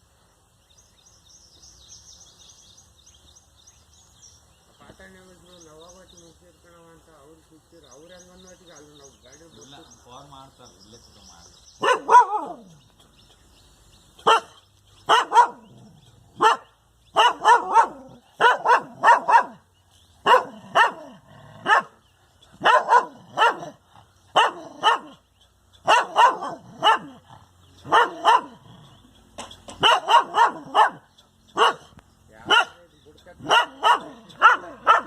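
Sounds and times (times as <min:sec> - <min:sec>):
dog barking: 0:11.8 - 0:12.7, 0:14.2 - 0:15.8, 0:16.4 - 0:19.6, 0:20.2 - 0:22.0, 0:22.6 - 0:25.2, 0:25.8 - 0:27.2, 0:27.8 - 0:28.6, 0:29.8 - 0:32.8, 0:33.4 - 0:35.0.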